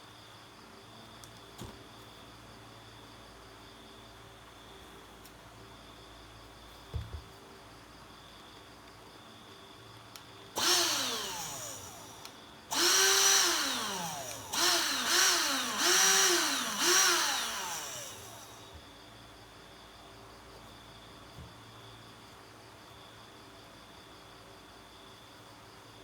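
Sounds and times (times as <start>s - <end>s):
electric blower motor whining: 10.6s - 18.8s.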